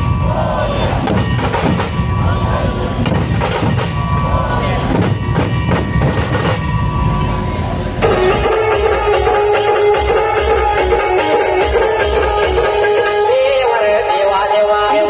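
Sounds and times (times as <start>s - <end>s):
voices: 0.0s - 6.4s
steady held tones: 6.6s - 15.0s
loud drumming: 8.0s - 13.7s
music with plucked strings: 8.0s - 15.0s.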